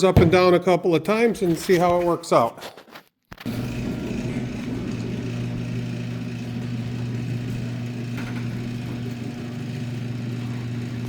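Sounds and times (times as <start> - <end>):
garage door opener humming: 3.5 - 11.0
garage door rolling: 3.5 - 11.0.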